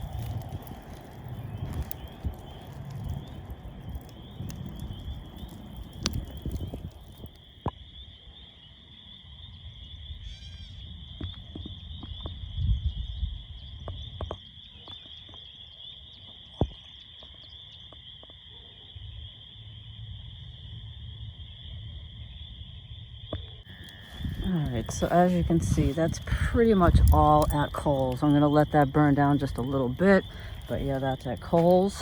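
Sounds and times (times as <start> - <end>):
campfire crackling and popping: 0.0 - 8.2, 23.6 - 32.0.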